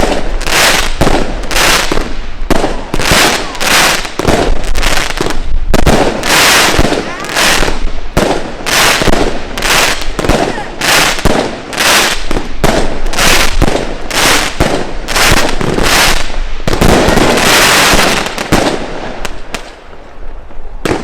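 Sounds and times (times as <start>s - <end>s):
firework launch shots: 0.0s - 19.8s
firework bursts: 0.0s - 21.0s.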